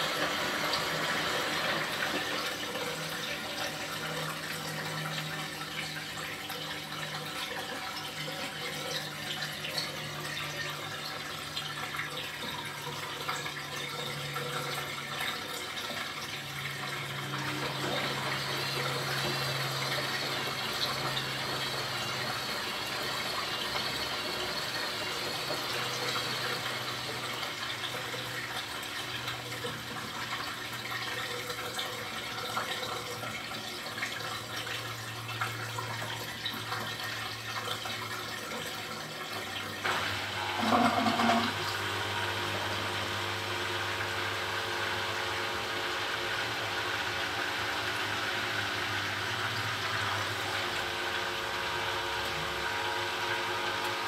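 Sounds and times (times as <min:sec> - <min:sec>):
washing machine running: 0:00.0 - 0:54.0
water sloshing in drum: 0:40.4 - 0:41.7.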